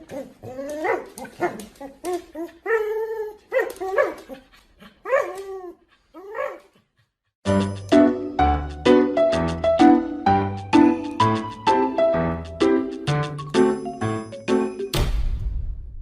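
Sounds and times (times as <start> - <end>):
dog whining and yipping: 0.0 - 6.8.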